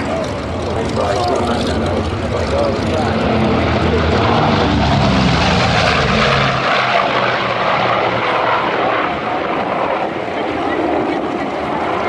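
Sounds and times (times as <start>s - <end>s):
propeller aircraft engine passing: 0.0s - 12.0s.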